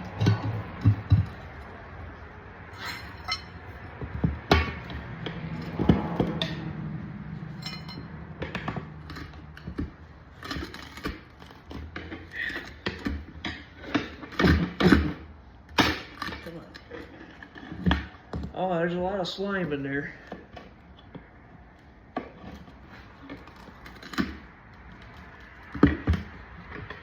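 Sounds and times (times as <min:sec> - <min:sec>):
metal tools knocking and clinking: 0:02.8 - 0:06.6, 0:07.5 - 0:09.8.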